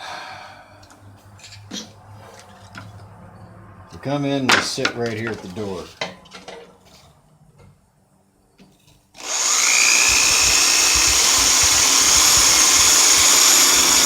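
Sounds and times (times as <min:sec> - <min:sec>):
electric power tool whining: 0:09.2 - 0:14.0.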